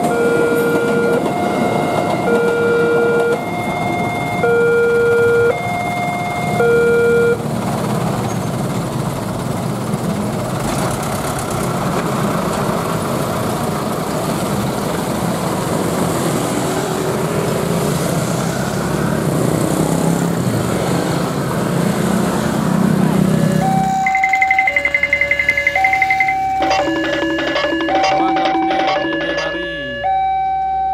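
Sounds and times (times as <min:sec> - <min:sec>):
road traffic rumble: 0:00.0 - 0:30.9
two-note signal: 0:23.6 - 0:30.9.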